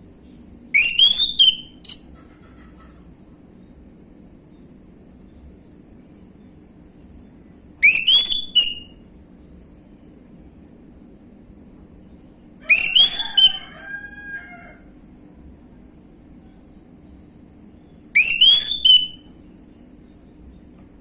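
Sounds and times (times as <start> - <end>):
thrush singing whistled notes: 0.8 - 2.1, 7.8 - 9.2, 12.7 - 13.6, 18.1 - 19.3.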